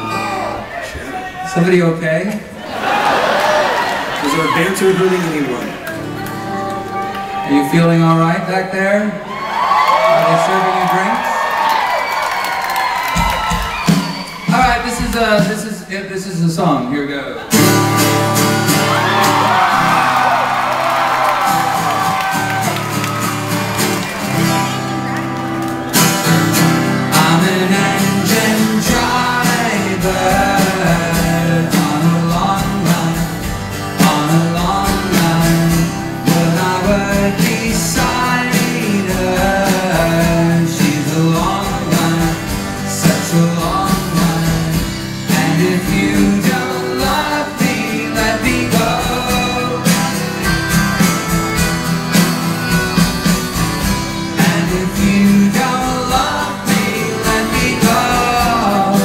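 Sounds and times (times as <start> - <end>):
strummed guitar: 4.6 - 8.8, 17.5 - 59.0
lead vocal singing: 27.0 - 50.6, 54.2 - 59.0.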